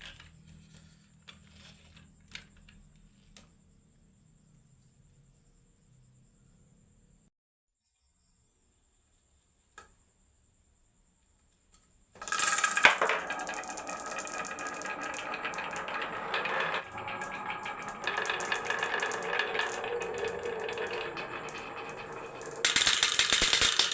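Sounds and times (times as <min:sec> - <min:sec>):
marbles rattling down a track: 0:12.2 - 0:23.9.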